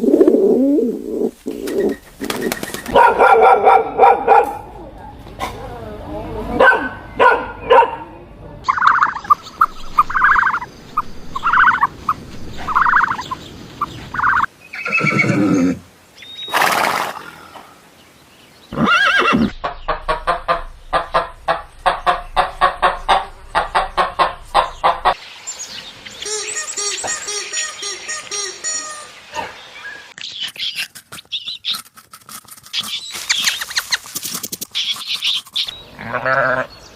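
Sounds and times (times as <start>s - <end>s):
horse neighing: 14.8s - 15.8s, 18.7s - 19.6s.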